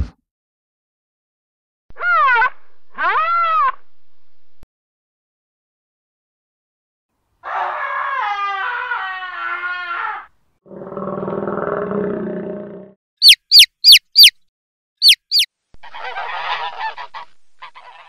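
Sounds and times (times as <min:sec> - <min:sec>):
sharp high chirps: 0:13.2 - 0:14.4, 0:15.0 - 0:15.5.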